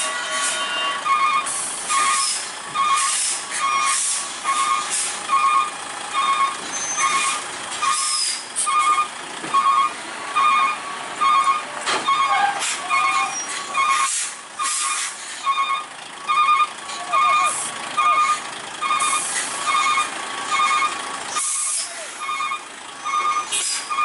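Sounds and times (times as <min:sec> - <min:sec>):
truck reversing alarm beeping: 0:00.0 - 0:24.0
air brakes hissing: 0:01.4 - 0:05.2, 0:06.7 - 0:08.8, 0:12.4 - 0:15.6, 0:19.0 - 0:19.6, 0:21.3 - 0:22.4, 0:23.4 - 0:24.0.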